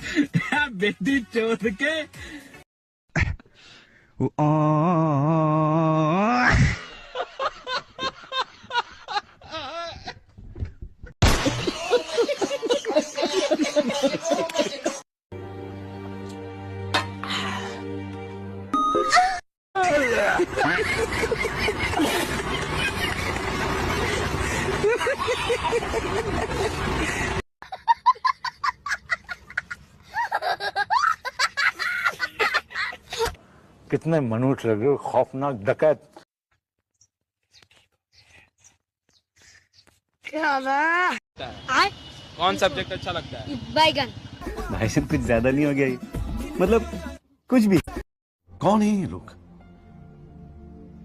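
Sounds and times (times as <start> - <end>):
person snickering: 24.6 - 27.4.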